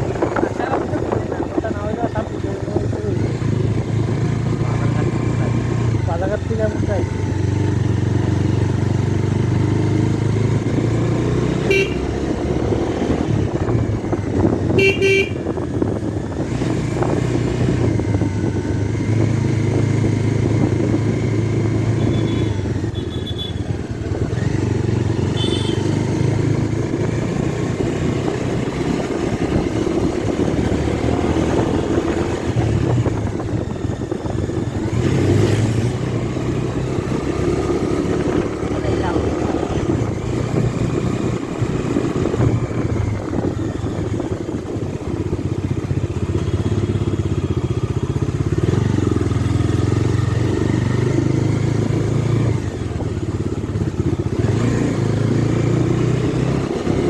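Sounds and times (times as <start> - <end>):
motorcycle engine running: 0.0 - 57.0
road and wind noise: 0.0 - 57.0
horn toots: 11.6 - 12.3, 14.6 - 15.6, 22.0 - 23.7, 25.3 - 26.0.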